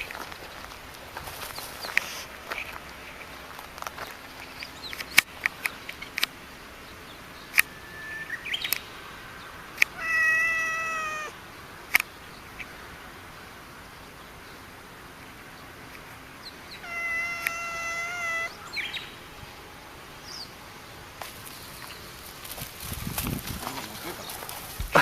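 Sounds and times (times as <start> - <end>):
cat meowing: 9.9 - 11.4, 16.8 - 18.7.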